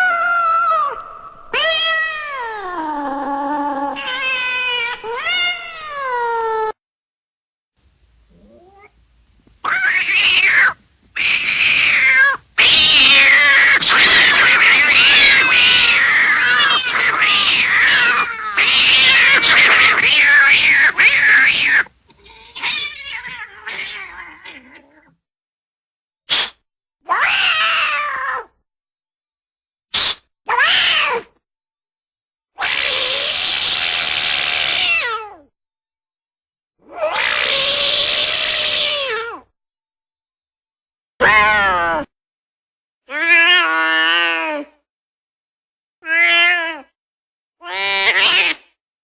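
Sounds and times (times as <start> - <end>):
cat yowling: 0.0 - 6.8, 8.3 - 8.9, 9.6 - 25.2, 27.0 - 28.6, 30.5 - 31.3, 32.6 - 35.5, 36.8 - 39.5, 41.2 - 42.1, 43.1 - 44.8, 46.0 - 46.9, 47.6 - 48.7
overlapping cat screeching yowls: 0.0 - 6.8, 9.6 - 25.2, 27.0 - 28.6, 30.0 - 31.3, 32.6 - 35.5, 36.8 - 39.5, 41.2 - 42.1, 43.1 - 44.8, 46.0 - 46.9, 47.6 - 48.7.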